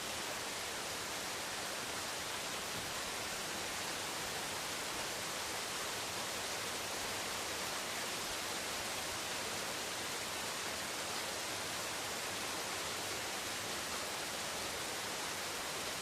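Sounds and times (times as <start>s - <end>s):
rain falling on leaves: 0.0s - 16.0s.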